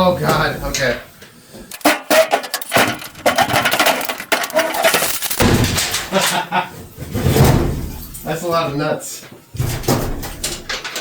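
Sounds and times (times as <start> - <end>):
loose nuts clattering: 1.7 - 6.4.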